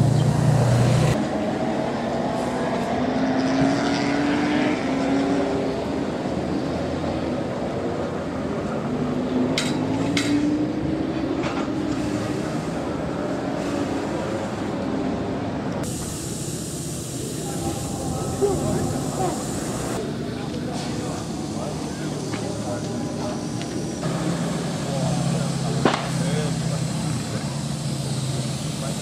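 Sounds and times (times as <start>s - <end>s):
loud low hum: 15.9s - 20.4s
voices: 16.9s - 29.0s.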